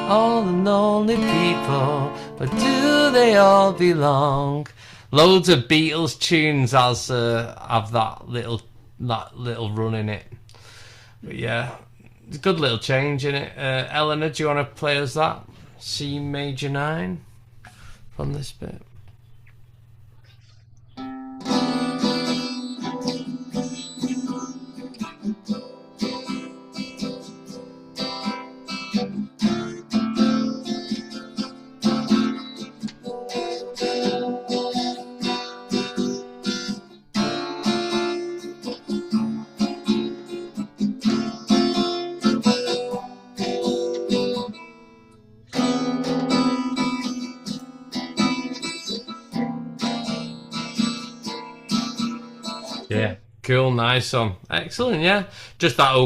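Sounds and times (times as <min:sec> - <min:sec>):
acoustic guitar strumming: 0:00.0 - 0:08.5, 0:21.0 - 0:53.4.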